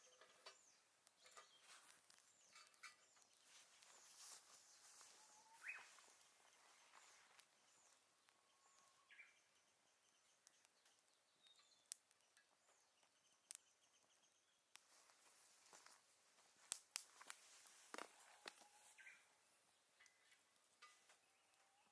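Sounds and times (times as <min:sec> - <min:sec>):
bird chirps and trills: 0:00.0 - 0:14.7.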